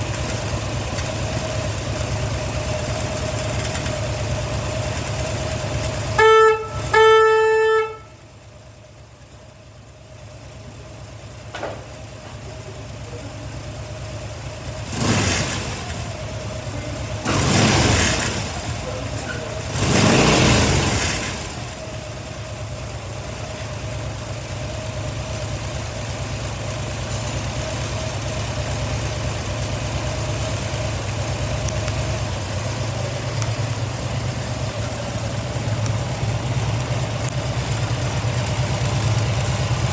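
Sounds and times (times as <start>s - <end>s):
motorcycle engine idling: 0.0s - 39.9s
horn beep: 6.0s - 8.2s.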